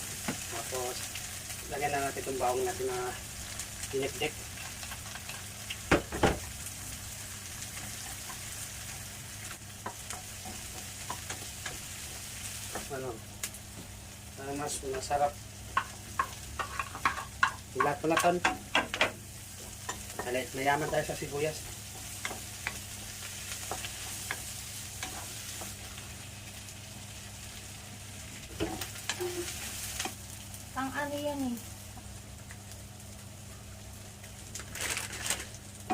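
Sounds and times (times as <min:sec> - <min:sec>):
garlic and onion sizzling in oil: 0:00.0 - 0:35.9
utensil knocking against pan: 0:15.8 - 0:19.2.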